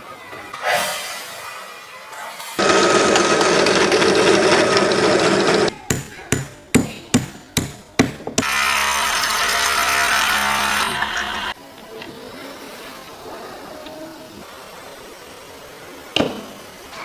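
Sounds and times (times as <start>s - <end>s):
sharp hammer strikes: 5.7s - 11.6s
power tool running: 5.9s - 11.6s.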